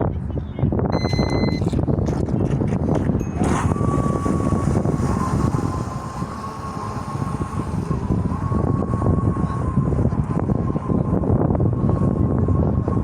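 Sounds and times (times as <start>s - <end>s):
wind buffeting microphone: 0.0s - 13.0s
electric motors whining: 3.4s - 12.4s.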